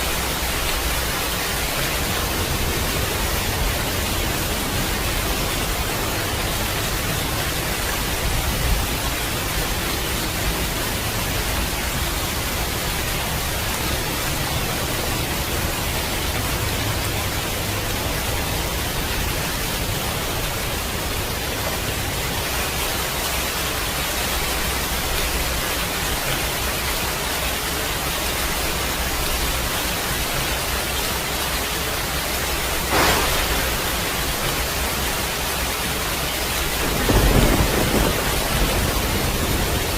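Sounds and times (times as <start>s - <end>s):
steady rain hiss: 0.0s - 39.9s
thunder crack: 32.8s - 35.1s, 36.6s - 39.9s.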